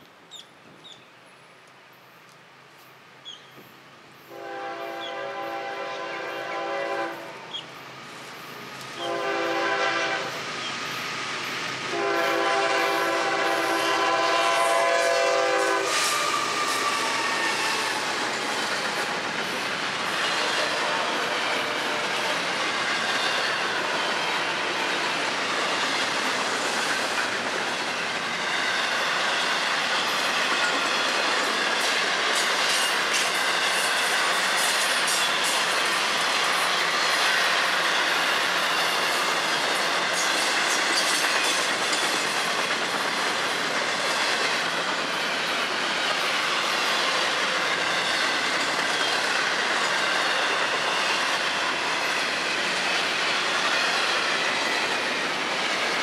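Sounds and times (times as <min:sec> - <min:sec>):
train rumble: 0:02.2 - 0:56.0
locomotive air horn blasts: 0:04.3 - 0:07.4, 0:09.0 - 0:10.4, 0:11.9 - 0:16.0, 0:20.6 - 0:21.8
wheels clacking on rails: 0:07.5 - 0:56.0.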